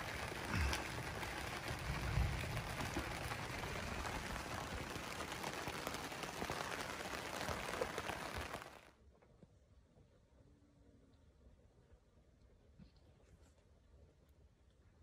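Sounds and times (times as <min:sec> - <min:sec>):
rain pattering on tent fabric: 0:00.0 - 0:09.0.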